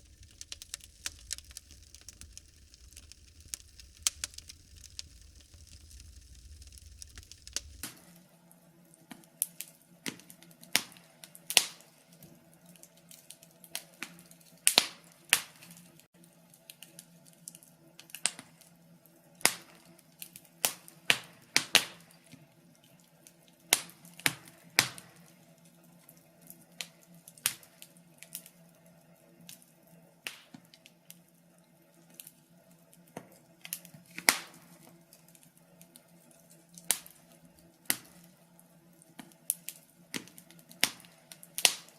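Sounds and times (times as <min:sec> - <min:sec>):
wood fire crackling: 0:00.0 - 0:08.0, 0:36.8 - 0:38.2, 0:39.5 - 0:41.9.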